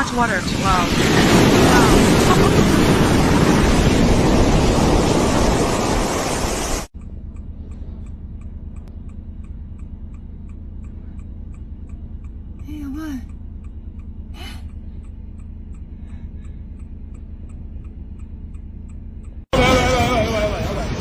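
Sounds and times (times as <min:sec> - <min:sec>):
seawater rushing: 0:00.0 - 0:06.9
faint regular ticks: 0:07.0 - 0:19.5
low steady hum: 0:07.0 - 0:21.0.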